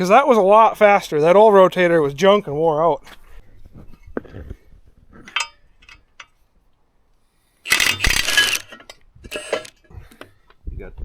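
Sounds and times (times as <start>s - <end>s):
loud harsh rattling burst: 7.7s - 8.7s
hand tools tapping machine parts: 7.7s - 9.8s.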